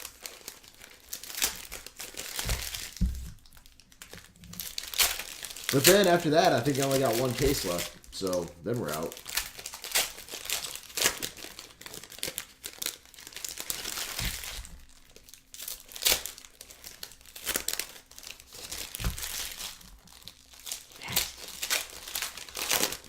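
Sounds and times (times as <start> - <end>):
card wrappers crinkling and tearing: 0.0 - 23.0
soft thumps: 2.5 - 3.4.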